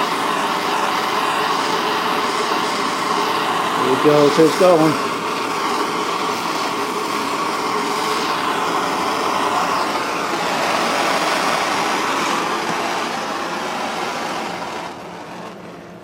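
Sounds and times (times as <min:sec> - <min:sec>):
gas torch hissing: 0:00.0 - 0:16.0.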